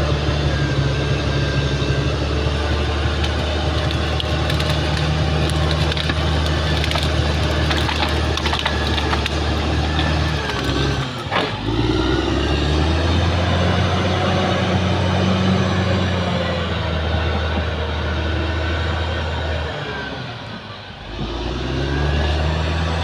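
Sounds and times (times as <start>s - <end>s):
bulldozer diesel engine running: 0.0s - 23.0s
sharp cracks and clicks: 2.6s - 11.8s.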